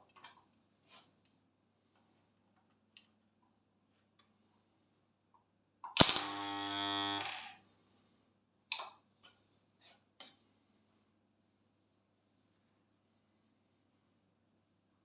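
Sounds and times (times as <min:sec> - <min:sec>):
spot welder crack: 0:05.8 - 0:07.2
electrical buzz: 0:06.0 - 0:07.6.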